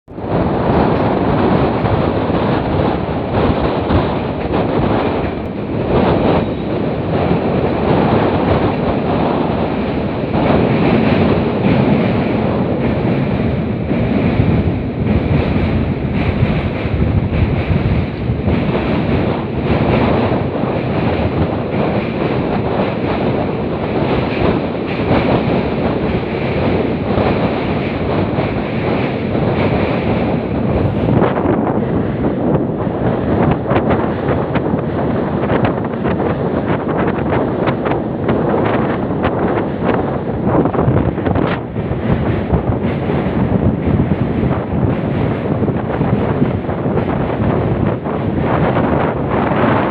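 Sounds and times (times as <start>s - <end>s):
moving train running noise: 0.1s - 49.9s
wind buffeting microphone: 0.1s - 49.9s.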